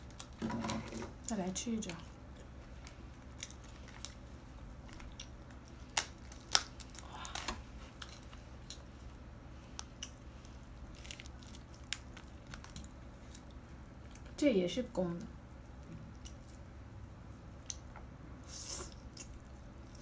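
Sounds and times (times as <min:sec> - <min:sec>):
lobster shell cracking: 0:00.0 - 0:08.9, 0:10.8 - 0:13.6.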